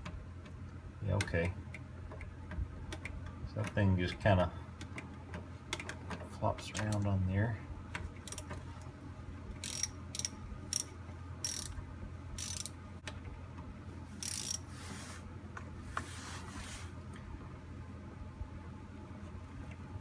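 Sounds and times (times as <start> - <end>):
ratchet wrench clicking: 8.2 - 8.5, 9.6 - 11.8, 12.4 - 12.8, 14.2 - 14.6.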